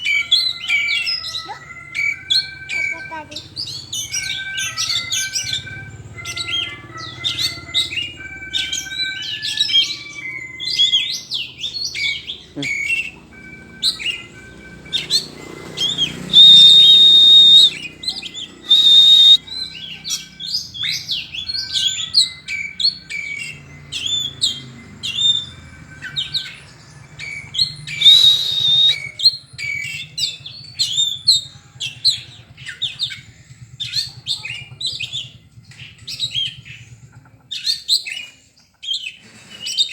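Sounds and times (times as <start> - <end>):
bird singing whistled notes: 0.0 - 36.8.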